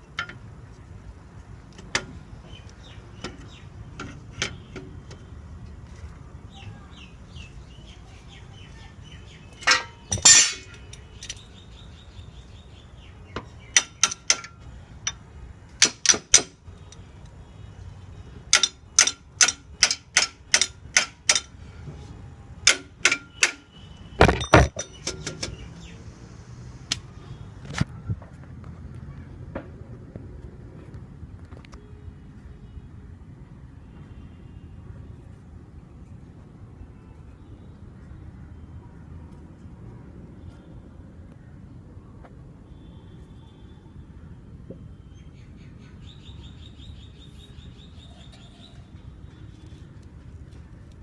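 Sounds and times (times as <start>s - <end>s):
ringing metal clangs: 9.6s - 11.4s, 13.8s - 15.2s, 18.5s - 21.6s, 22.7s - 25.4s
metal tools clinking on metal: 9.6s - 11.5s, 13.7s - 15.2s, 18.5s - 21.6s, 22.6s - 25.6s.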